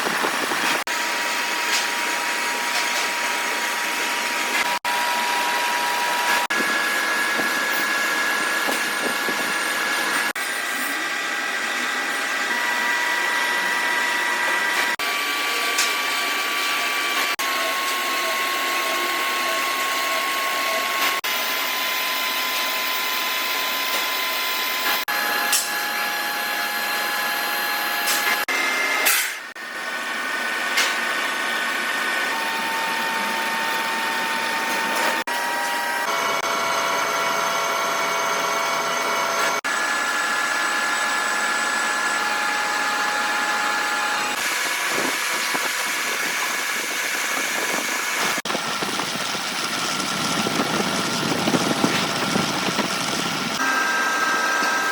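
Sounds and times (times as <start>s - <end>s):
power tools whining: 0.0s - 54.9s.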